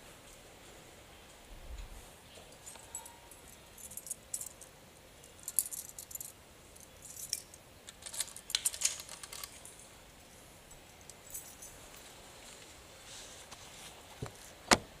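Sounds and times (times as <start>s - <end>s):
small metal objects jingling: 2.5s - 4.7s, 5.3s - 9.9s, 10.9s - 12.0s.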